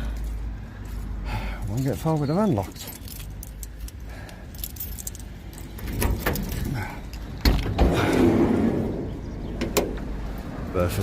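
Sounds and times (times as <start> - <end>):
keys jangling and clicking: 0.0 - 7.6
van door clunks: 7.4 - 8.2.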